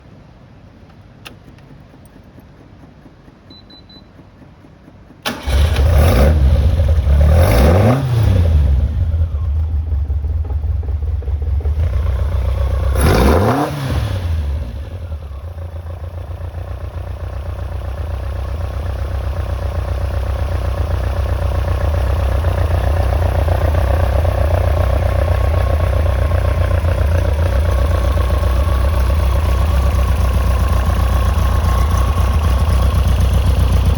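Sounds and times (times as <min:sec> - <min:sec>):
ignition click: 0:00.9 - 0:06.1
short beep: 0:03.5 - 0:04.2
car engine starting and revving: 0:05.2 - 0:33.9.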